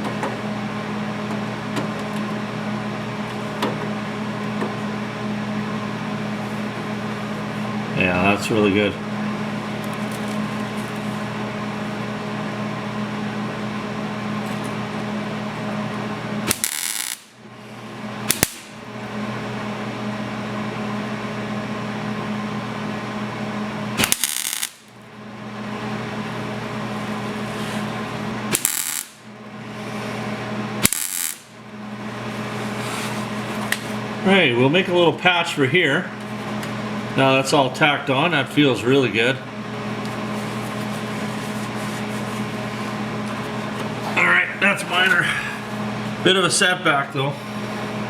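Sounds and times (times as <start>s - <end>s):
steady background hum: 0.0s - 48.0s
welder crackling bursts: 16.4s - 17.4s, 18.2s - 18.8s, 23.9s - 25.0s, 28.5s - 29.3s, 30.8s - 31.6s.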